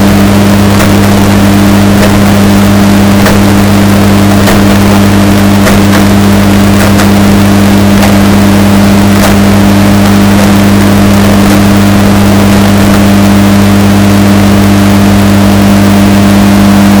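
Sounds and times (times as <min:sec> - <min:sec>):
washing machine running distorted: 0:00.0 - 0:17.0.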